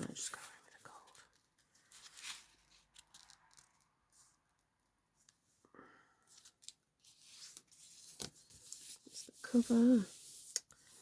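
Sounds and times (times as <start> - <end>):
paper rustling: 0.0 - 4.4, 6.3 - 11.0
paper crinkles: 0.1 - 4.4.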